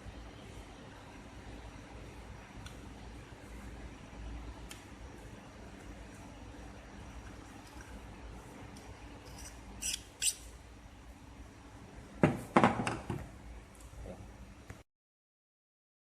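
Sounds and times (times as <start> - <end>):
low machine hum: 0.0 - 12.2.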